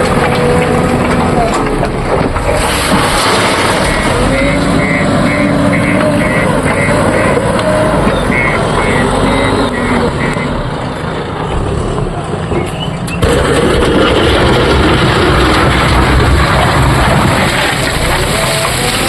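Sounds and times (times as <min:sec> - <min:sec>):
heavy diesel machinery running: 0:00.0 - 0:19.0
reversing alarm beeping: 0:03.9 - 0:10.6.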